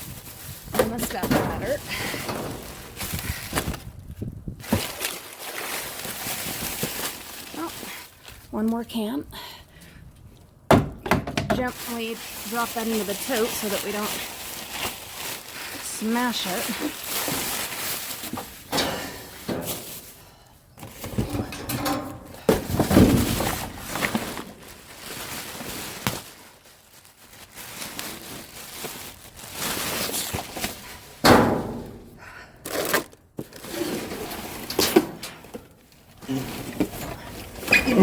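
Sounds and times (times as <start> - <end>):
trash bags rustling: 0.0 - 8.7, 11.6 - 32.1, 32.7 - 38.0
trash thunking and knocking: 0.6 - 4.0, 10.7 - 11.8, 18.3 - 20.2, 20.8 - 24.8, 31.2 - 32.1.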